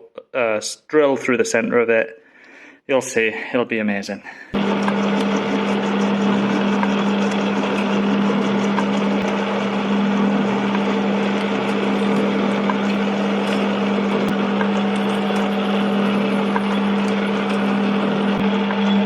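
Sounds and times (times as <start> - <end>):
metal lathe humming: 4.6 - 19.0.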